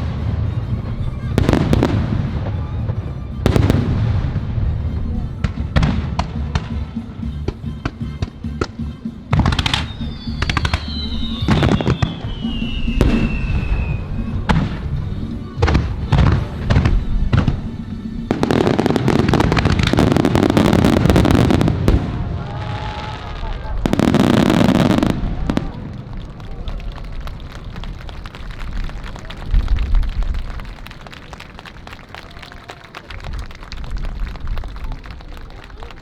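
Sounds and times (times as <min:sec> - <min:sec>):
music playing: 0:00.0 - 0:21.8
fireworks booming and crackling: 0:00.0 - 0:36.0.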